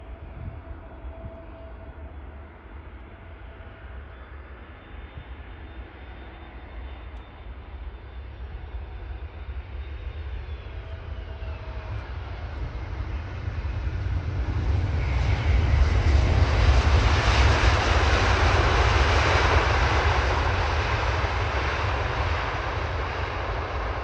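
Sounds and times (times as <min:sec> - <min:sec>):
jet engine whine: 0:00.0 - 0:24.0
jet engines rumbling: 0:00.0 - 0:24.0.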